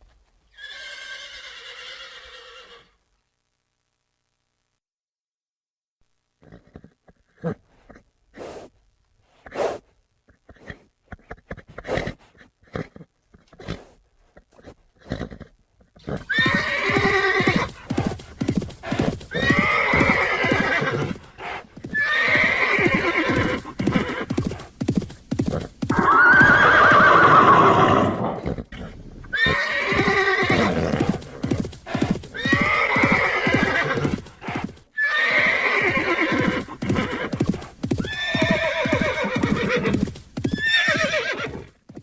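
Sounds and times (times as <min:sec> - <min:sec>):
horse whinnying: 0:00.5 - 0:03.0, 0:15.0 - 0:24.7, 0:25.4 - 0:41.8
horse hooves clip-clopping: 0:15.8 - 0:28.1, 0:29.8 - 0:35.0, 0:35.8 - 0:42.0.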